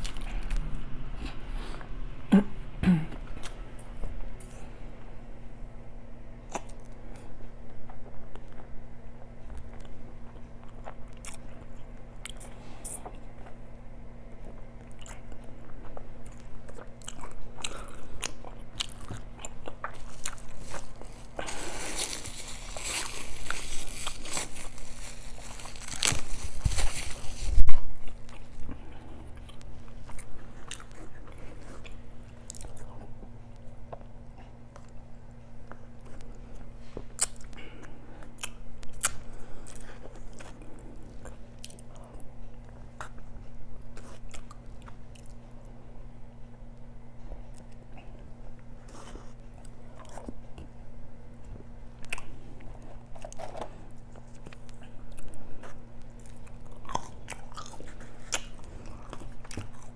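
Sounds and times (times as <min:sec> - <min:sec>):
steady low hum: 0:00.0 - 0:59.9
person biting and chewing food: 0:15.9 - 0:28.7, 0:38.3 - 0:41.9, 0:52.1 - 0:59.9.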